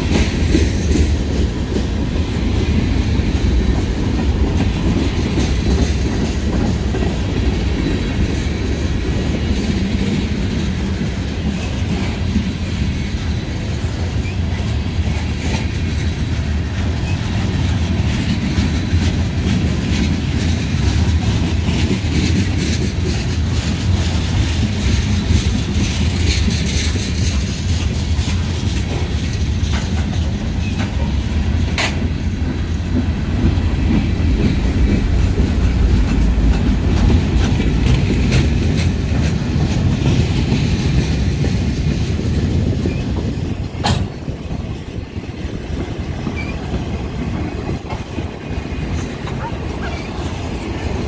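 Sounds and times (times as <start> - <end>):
wheels clacking over rail joints: 0.0 - 51.0.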